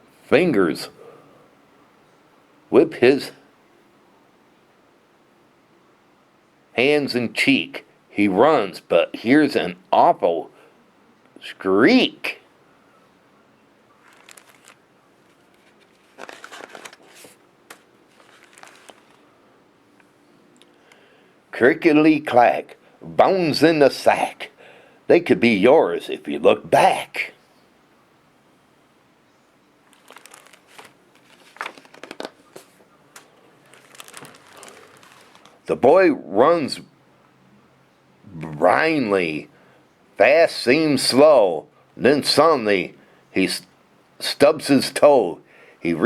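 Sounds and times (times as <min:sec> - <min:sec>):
page turning: 0:14.0 - 0:19.3, 0:29.8 - 0:35.6
paper crinkling and rustling: 0:14.0 - 0:19.4, 0:29.8 - 0:35.6.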